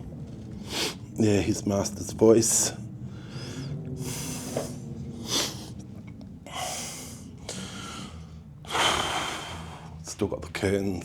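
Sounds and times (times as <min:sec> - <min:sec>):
man breathing: 0:03.0 - 0:05.9, 0:06.5 - 0:10.0.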